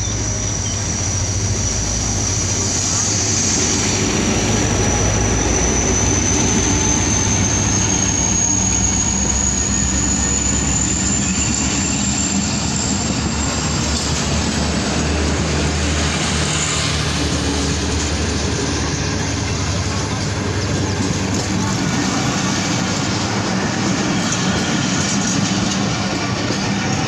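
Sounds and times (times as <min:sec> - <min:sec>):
high whine rising in pitch: 0:00.0 - 0:24.9
train rumbling past: 0:00.0 - 0:27.0.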